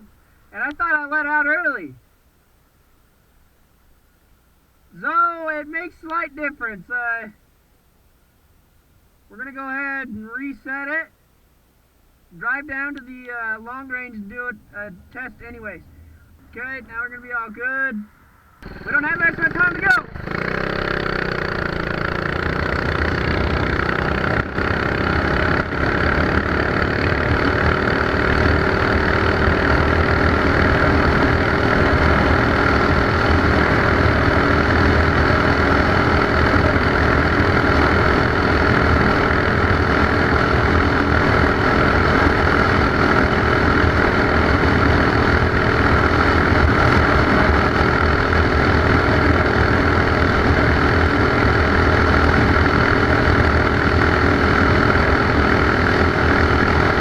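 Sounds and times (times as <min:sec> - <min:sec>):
mini bike engine droning: 0:18.6 - 0:57.0.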